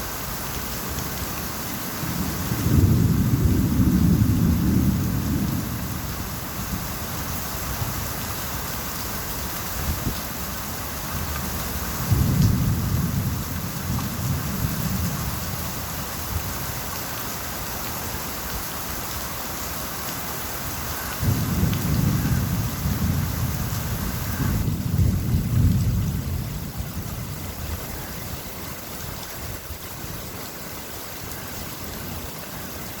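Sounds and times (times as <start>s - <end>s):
steady rain: 0.0s - 33.0s
thunder rumbling: 2.0s - 6.9s, 11.2s - 15.8s, 21.2s - 28.6s.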